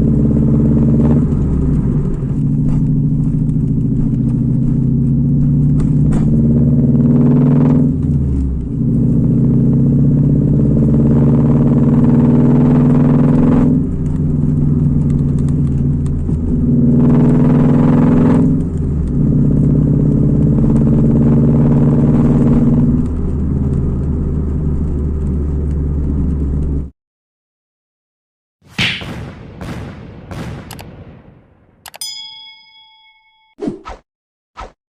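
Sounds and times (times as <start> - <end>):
car engine running loudly: 0.0 - 26.9
engine revving: 0.0 - 26.9.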